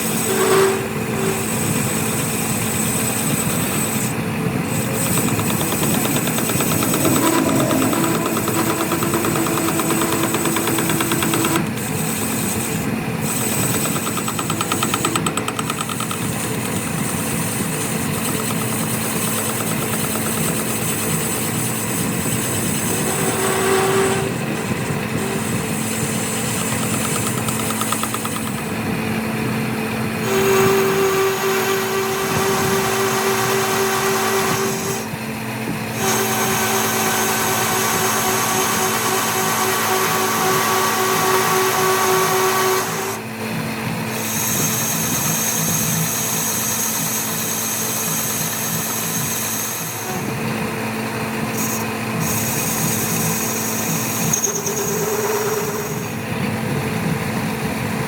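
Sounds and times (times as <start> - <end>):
workshop machinery humming and whining: 0.0 - 58.0.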